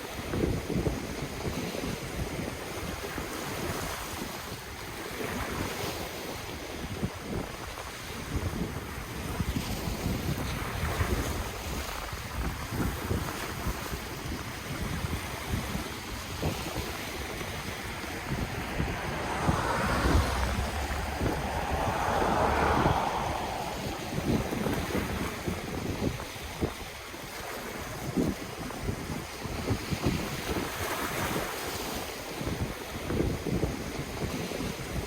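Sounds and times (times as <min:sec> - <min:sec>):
wind buffeting microphone: 0:06.7 - 0:35.0
ocean waves breaking on shore: 0:12.2 - 0:34.4.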